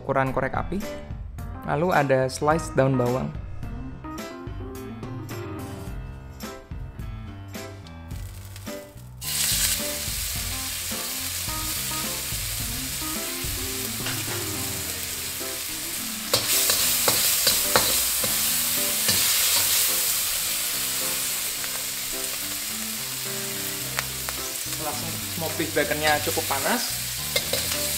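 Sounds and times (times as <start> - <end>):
background music: 0.0 - 27.9
bacon sizzling in a wok: 8.1 - 27.9
metal ladle scraping a wok: 16.3 - 20.2, 27.1 - 27.9.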